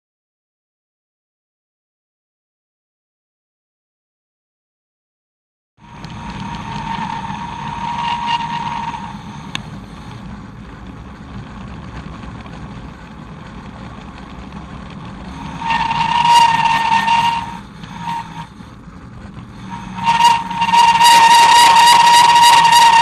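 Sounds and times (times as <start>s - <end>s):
bicycle disc brake squealing: 5.8s - 10.1s, 15.2s - 18.7s, 19.5s - 23.0s
wind noise: 5.8s - 23.0s.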